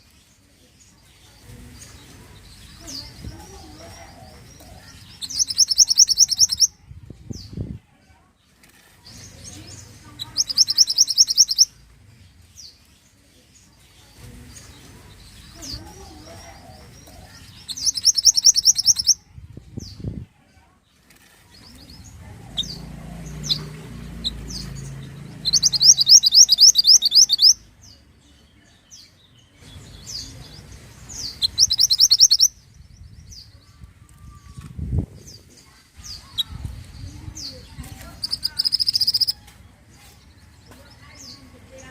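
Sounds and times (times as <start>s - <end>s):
bird chirps: 1.1s - 6.7s, 9.1s - 11.8s, 13.9s - 19.2s, 21.5s - 33.6s, 37.4s - 40.5s
songbird singing high notes: 5.1s - 6.7s, 10.2s - 11.7s, 17.6s - 19.2s, 22.6s - 27.7s, 31.1s - 32.7s, 38.2s - 39.4s.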